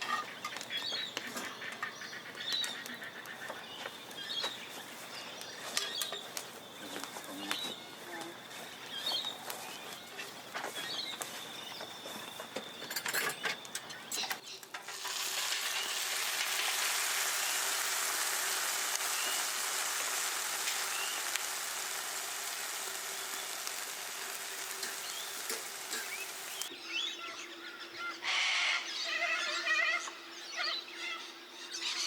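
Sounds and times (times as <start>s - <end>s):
food sizzling in a pan: 14.8s - 26.7s.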